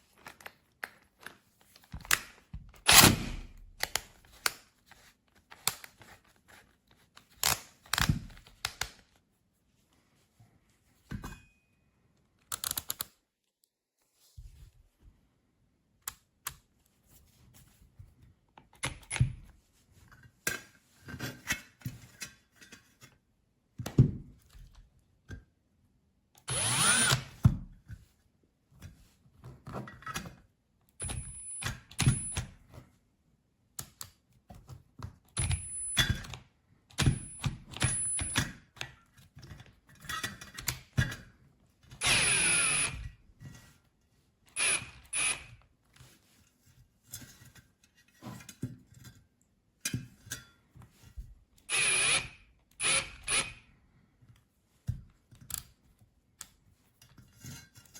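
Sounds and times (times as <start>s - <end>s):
cordless drill whirring: 26.5s - 27.4s, 42.0s - 43.0s, 44.6s - 45.5s, 51.7s - 53.6s.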